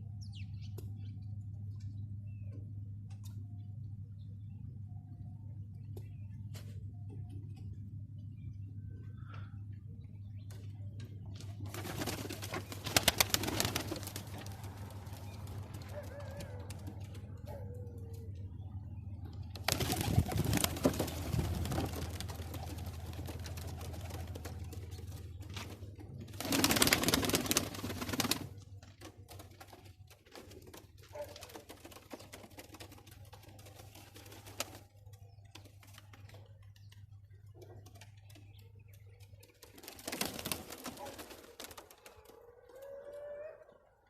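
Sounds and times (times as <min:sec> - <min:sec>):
pigeons cooing: 0:11.7 - 0:18.8, 0:19.4 - 0:28.4.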